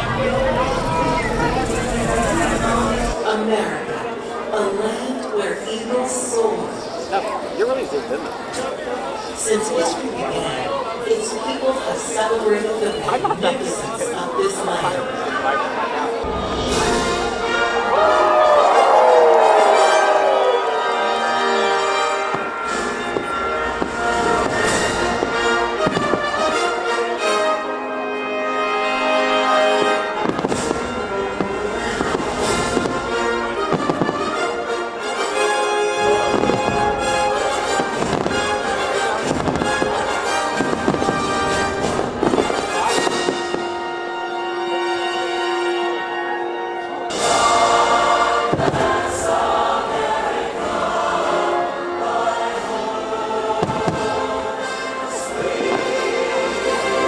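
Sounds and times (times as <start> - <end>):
fireworks bangs: 0.0 - 3.2, 16.1 - 27.6, 29.8 - 44.0, 47.1 - 50.6, 53.5 - 57.0
orchestral music with brass: 0.0 - 3.3, 9.0 - 57.0
choir singing sustained notes: 16.0 - 57.0.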